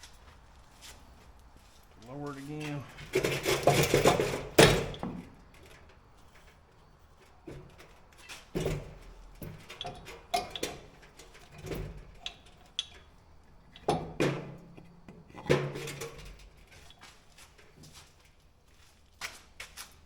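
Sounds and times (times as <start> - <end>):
metal knocks and clanks: 2.7 - 6.6, 7.3 - 18.0.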